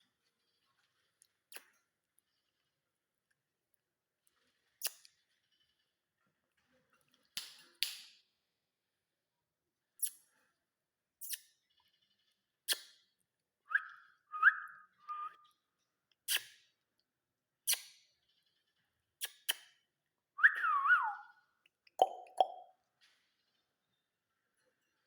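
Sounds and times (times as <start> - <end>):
parrot chirping and whistling: 13.7 - 15.4, 20.4 - 21.4, 22.0 - 22.7.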